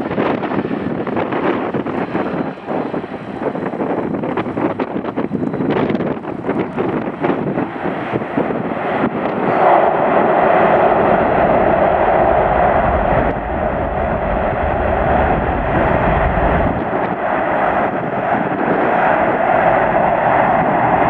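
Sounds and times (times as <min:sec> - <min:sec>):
jet engines running: 0:00.0 - 0:21.0
deep low rumble: 0:04.2 - 0:21.0.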